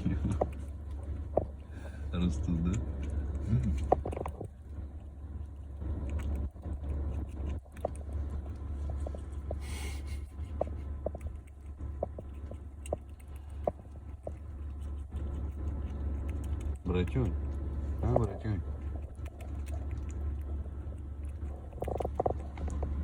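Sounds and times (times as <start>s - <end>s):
squirrel chewing crunchy clicks: 0.0s - 23.0s
steady low rumble: 0.0s - 23.0s.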